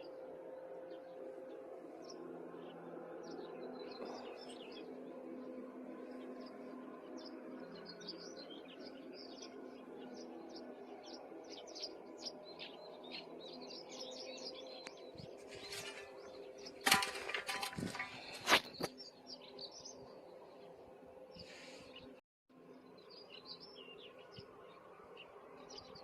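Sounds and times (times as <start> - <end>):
small birds chirping: 2.0 - 5.1, 5.9 - 20.7, 21.3 - 22.2, 22.8 - 26.0
sharp crackling and rustling: 15.2 - 19.1.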